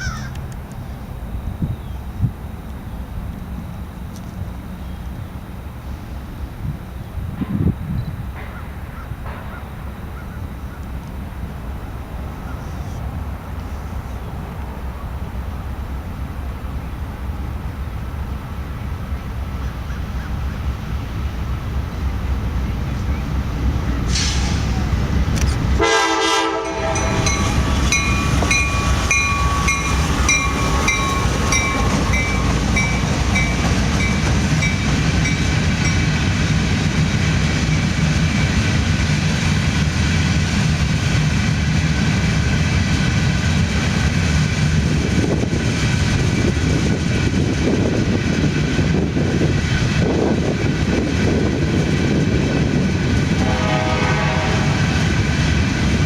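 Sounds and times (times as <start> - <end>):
train wheels rumbling on rails: 0.0 - 56.0
locomotive horn blast: 25.8 - 32.6, 53.3 - 55.1
bell ringing: 26.9 - 36.1.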